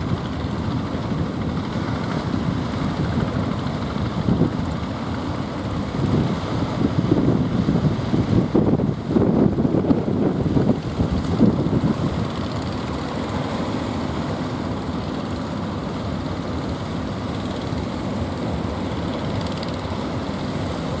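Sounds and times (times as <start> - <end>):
wind buffeting microphone: 0.0 - 13.9
boat engines droning: 0.0 - 21.0.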